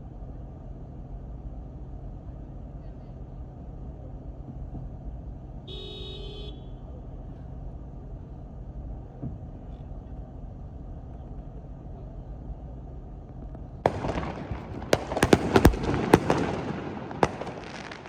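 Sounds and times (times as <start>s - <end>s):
car rumbling on road: 0.0s - 18.0s
car horn honking: 5.7s - 6.9s.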